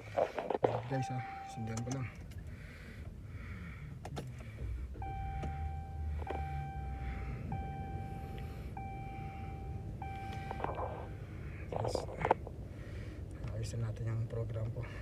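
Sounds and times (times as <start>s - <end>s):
car engine starting rumble: 0.0s - 15.0s
dashboard warning chime beeping: 0.7s - 2.2s, 5.0s - 12.0s.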